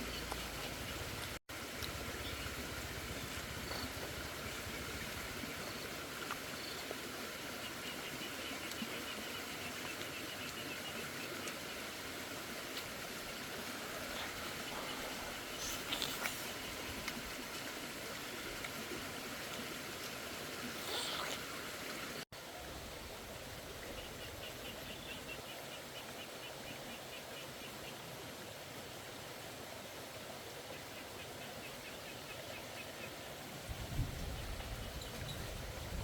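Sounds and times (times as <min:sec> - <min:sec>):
flowing water rushing: 0:00.0 - 0:25.2.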